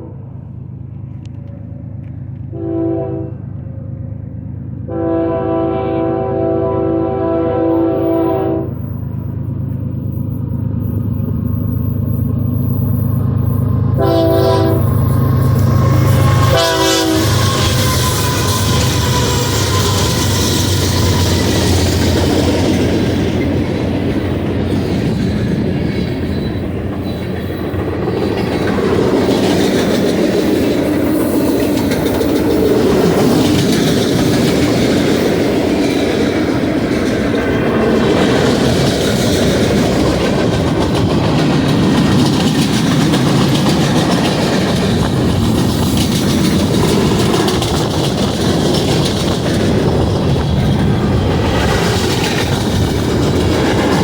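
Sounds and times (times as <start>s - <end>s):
heavy train rumble: 0.0s - 54.0s
train wheels clacking over rail joints: 13.4s - 54.0s.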